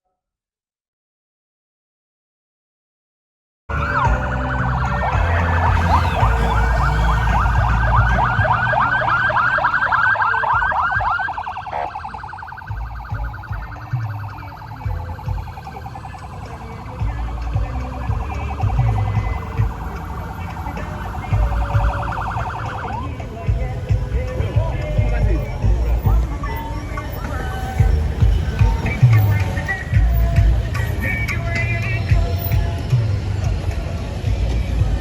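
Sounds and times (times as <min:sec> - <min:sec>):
electronic siren: 0:03.7 - 0:23.7.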